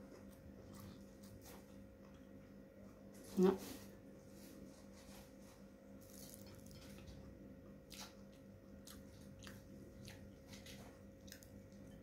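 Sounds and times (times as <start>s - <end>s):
person chewing food: 0.0s - 2.4s, 6.0s - 12.0s
faint steady hum: 0.0s - 12.0s.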